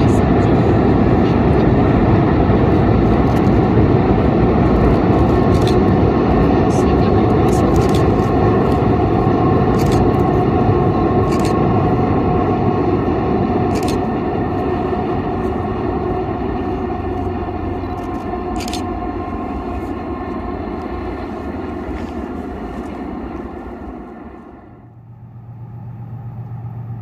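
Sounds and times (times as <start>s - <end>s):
train rumbling across steel bridge: 0.0s - 27.0s.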